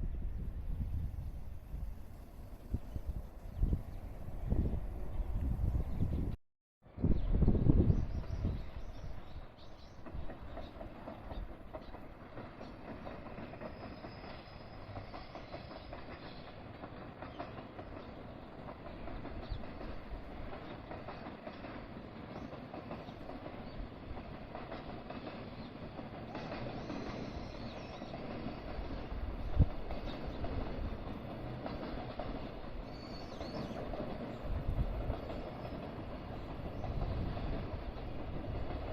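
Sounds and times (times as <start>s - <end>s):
train wheels clacking on rails: 7.8s - 38.9s.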